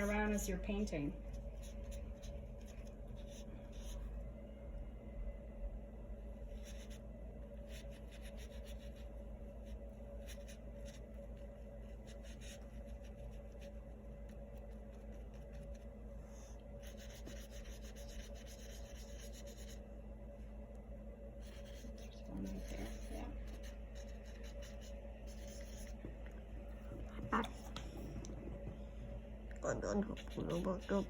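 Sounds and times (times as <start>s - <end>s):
steady low hum: 0.0s - 31.0s
paintbrush strokes on paper: 7.6s - 19.8s, 21.4s - 26.1s, 29.9s - 31.0s.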